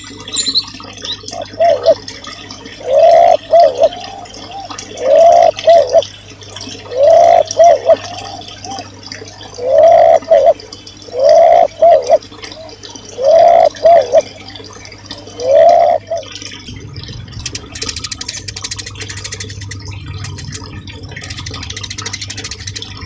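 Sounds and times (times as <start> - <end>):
low-pitched bird call: 2.8 - 6.1, 6.9 - 14.6, 15.3 - 16.3.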